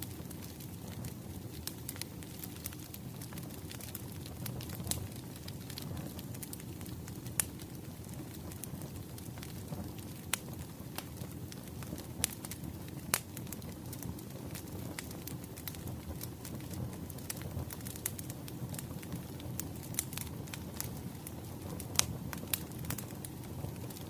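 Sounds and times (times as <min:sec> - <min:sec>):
fire crackling and popping: 0:00.0 - 0:24.0
wood fire rumble: 0:00.0 - 0:24.0.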